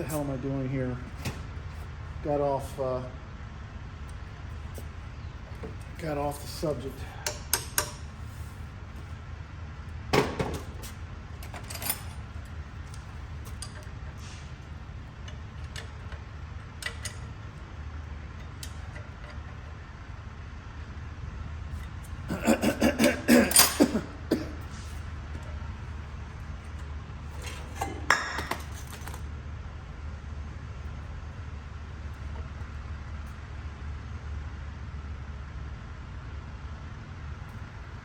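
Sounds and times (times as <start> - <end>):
steady low hum: 0.0 - 38.0
sharp metal knocks: 27.8 - 28.8.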